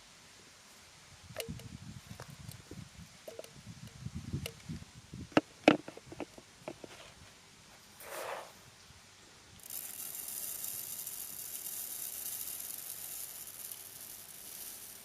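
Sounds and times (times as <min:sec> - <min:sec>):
ingredients pouring into mixer jar: 0:09.7 - 0:15.0.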